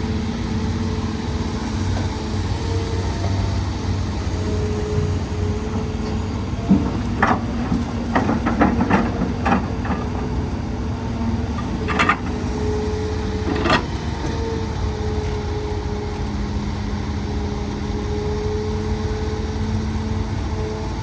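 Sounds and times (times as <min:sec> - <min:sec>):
excavator diesel engine running: 0:00.0 - 0:21.0
metallic clanks and knocks: 0:04.4 - 0:10.7, 0:11.3 - 0:14.4.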